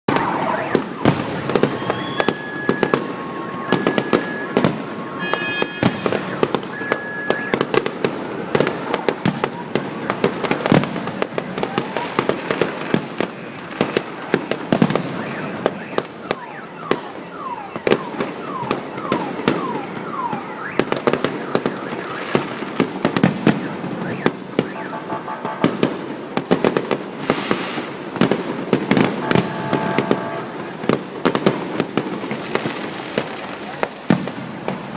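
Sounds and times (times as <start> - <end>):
falling whistles: 0.1 - 7.6
fireworks bangs and crackling: 0.1 - 34.9.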